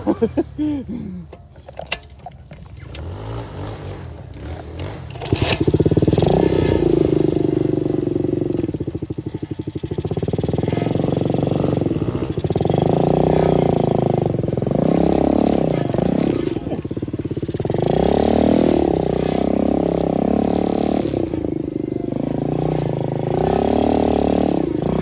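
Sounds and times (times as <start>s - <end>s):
dirt bike engine revving: 2.6s - 25.0s.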